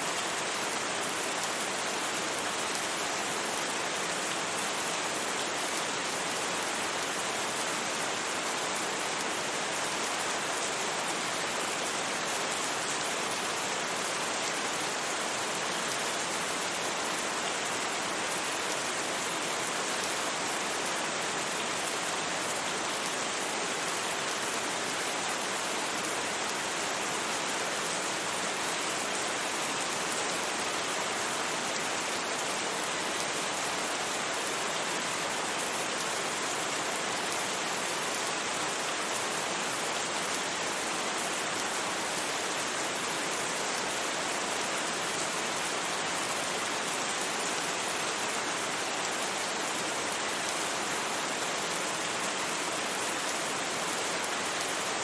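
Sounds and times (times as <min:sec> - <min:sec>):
steady rain hissing: 0:00.0 - 0:55.0.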